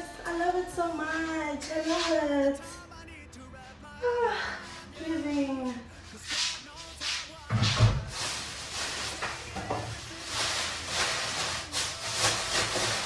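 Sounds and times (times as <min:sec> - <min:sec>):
packaging rustling: 0:08.0 - 0:13.0.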